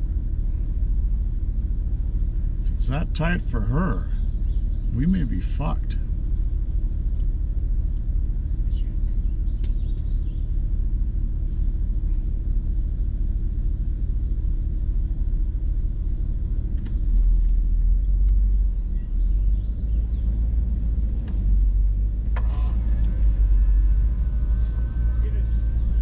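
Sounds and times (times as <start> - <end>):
engine rumbling at low speed: 0.0 - 26.0.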